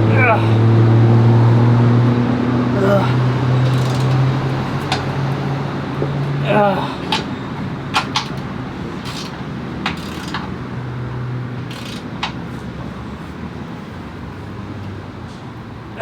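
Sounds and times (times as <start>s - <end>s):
hand tools clicking on bolts: 2.8s - 5.4s, 6.0s - 12.6s.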